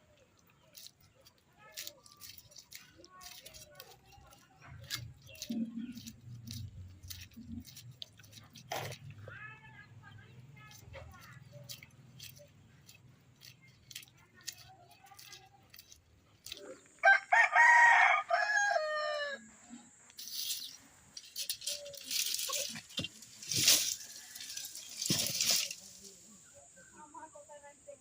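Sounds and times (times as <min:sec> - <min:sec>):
rooster crowing: 0:17.0 - 0:19.5.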